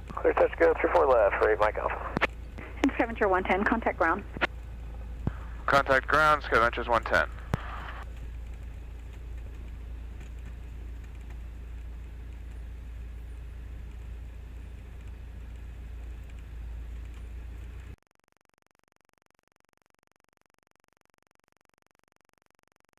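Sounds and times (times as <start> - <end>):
plane engine idling: 0.0 - 18.0.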